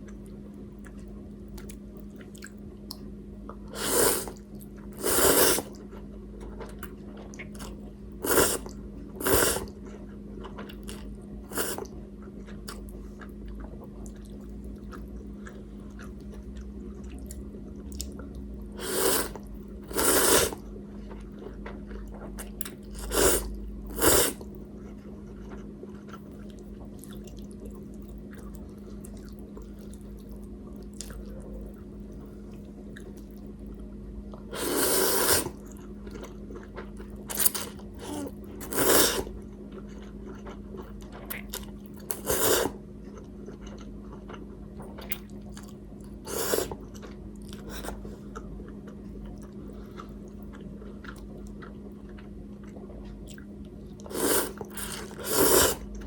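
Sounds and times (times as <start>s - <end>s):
person chewing noodles: 0.0s - 3.0s, 3.6s - 56.0s
noodles being slurped: 3.8s - 4.4s, 5.0s - 5.8s, 8.2s - 9.7s, 11.5s - 11.9s, 18.8s - 20.6s, 22.9s - 24.4s, 34.5s - 35.6s, 37.3s - 39.3s, 42.1s - 42.8s, 46.3s - 46.8s, 54.1s - 55.9s.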